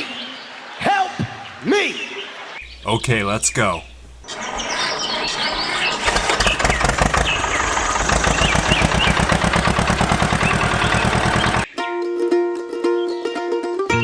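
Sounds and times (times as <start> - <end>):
small engine chugging: 2.6 - 11.7
birds chirping: 2.6 - 11.9.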